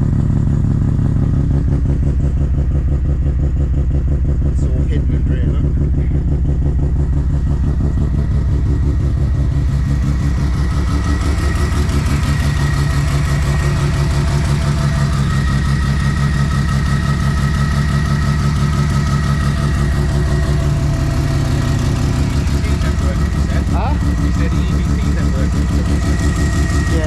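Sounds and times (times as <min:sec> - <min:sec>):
rotary engine idling: 0:00.0 - 0:27.0.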